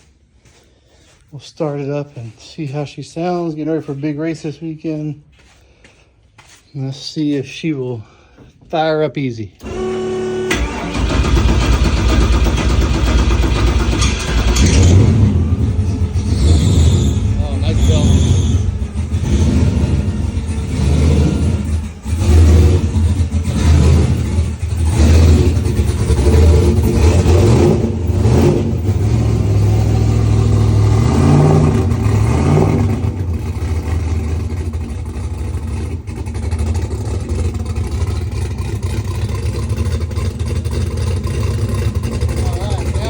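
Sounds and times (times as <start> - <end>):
race car engine revving and idling: 9.6 - 43.0.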